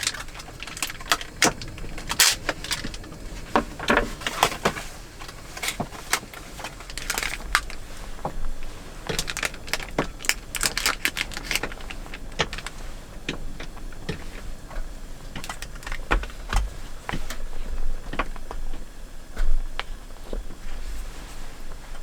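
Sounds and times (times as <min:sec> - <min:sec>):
small objects clicking and crinkling: 0:00.0 - 0:08.0, 0:09.1 - 0:12.8.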